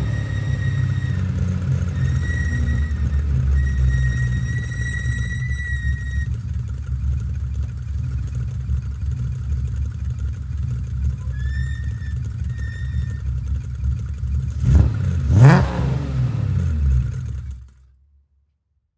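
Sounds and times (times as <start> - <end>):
short high squeals: 0.0 - 6.4, 11.1 - 13.4
engine throttle blips: 0.0 - 7.0
car engine exhaust rumble: 0.0 - 17.8.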